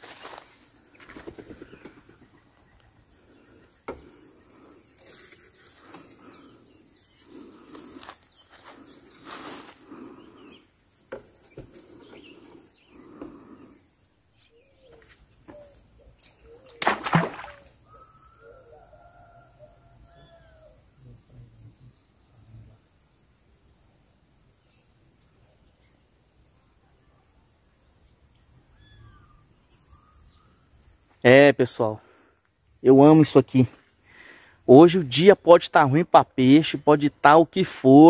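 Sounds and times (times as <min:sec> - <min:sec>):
birds chirping: 0:00.0 - 0:38.0
rustling and brushing: 0:07.7 - 0:09.8.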